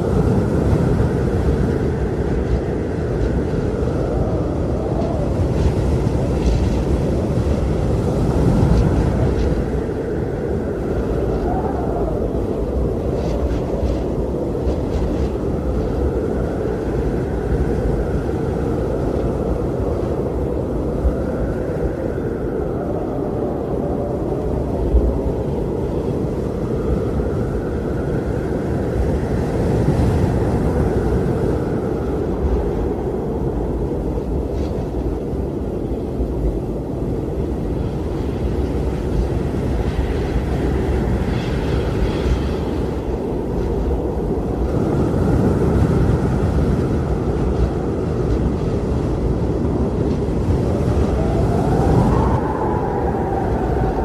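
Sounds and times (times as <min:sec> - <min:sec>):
strong wind blowing: 0:00.0 - 0:54.0.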